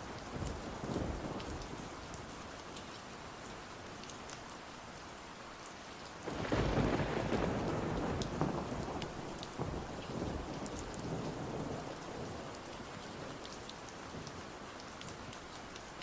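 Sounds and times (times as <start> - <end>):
steady rain: 0.0 - 16.0
low rumble of thunder: 0.4 - 2.0, 6.3 - 14.4.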